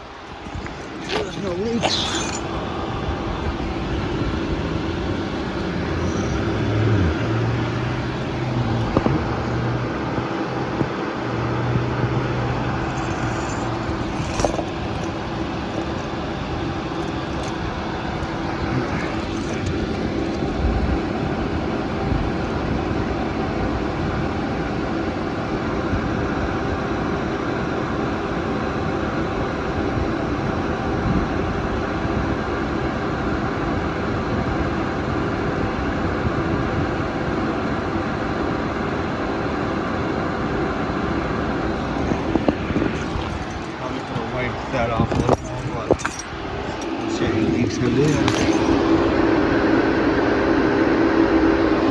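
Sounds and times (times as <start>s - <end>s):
car engine idling: 0.0s - 25.7s, 39.0s - 51.9s.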